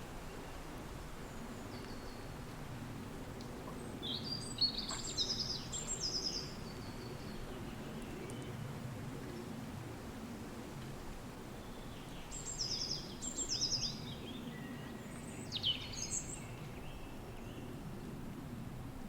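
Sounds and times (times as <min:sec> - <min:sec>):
small bird singing: 0:11.7 - 0:17.6.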